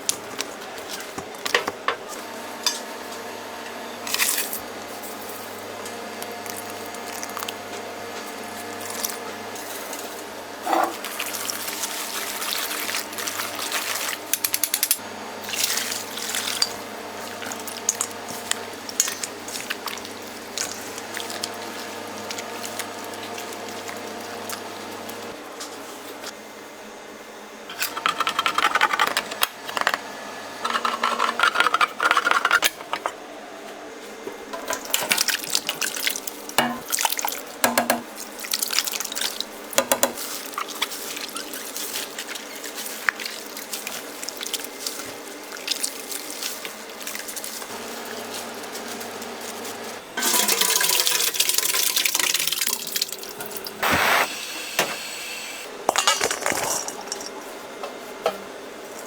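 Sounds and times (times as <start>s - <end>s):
utensils and dishes clattering: 8.8s - 19.9s, 36.6s - 38.0s, 50.2s - 52.4s, 55.9s - 57.6s.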